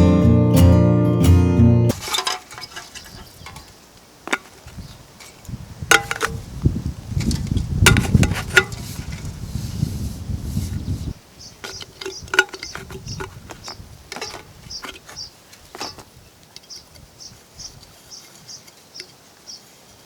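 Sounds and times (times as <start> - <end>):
sharp clicks and knocks: 1.9 - 6.4, 7.2 - 9.3, 11.6 - 16.1.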